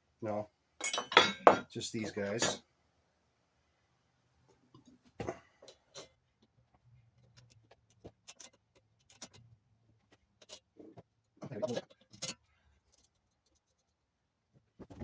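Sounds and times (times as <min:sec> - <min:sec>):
small metal parts clicking: 0:07.2 - 0:09.5, 0:11.7 - 0:13.9.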